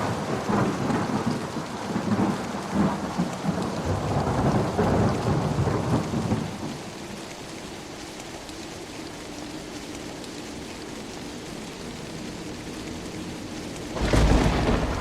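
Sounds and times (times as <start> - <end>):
thunder rumbling: 0.0 - 6.9, 11.9 - 15.0
heavy rain: 0.0 - 15.0.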